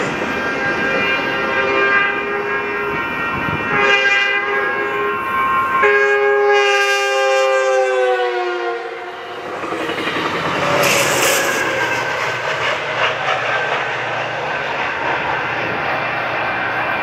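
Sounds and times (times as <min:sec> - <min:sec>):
train horn: 0:00.0 - 0:09.6
train rumbling and clattering past: 0:00.0 - 0:17.0.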